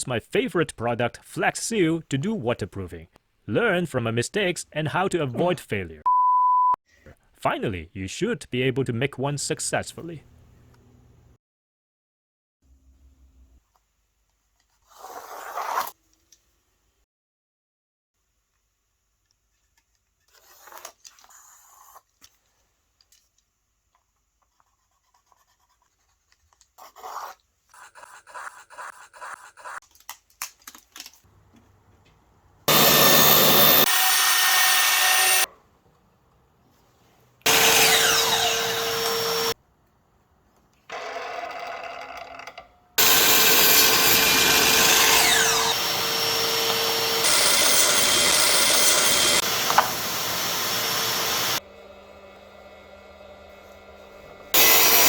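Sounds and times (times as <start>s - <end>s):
power tools cutting wood: 32.7s - 35.5s, 37.5s - 39.6s, 40.9s - 41.8s, 43.0s - 55.0s.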